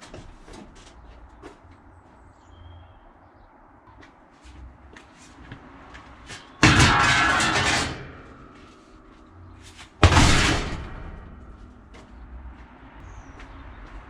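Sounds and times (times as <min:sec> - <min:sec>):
heavy objects crashing: 0:06.3 - 0:11.9
sharp bang: 0:06.6 - 0:08.8, 0:10.0 - 0:11.9.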